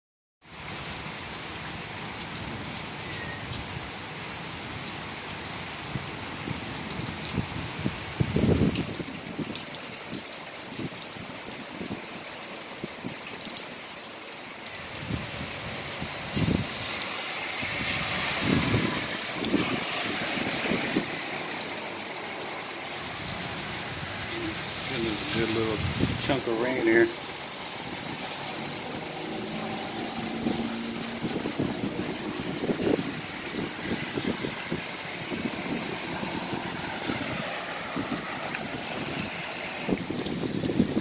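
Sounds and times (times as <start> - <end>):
heavy rain on pavement: 0.4 - 41.0
car tyres hissing through water: 14.1 - 41.0
low rumbles: 20.4 - 35.5.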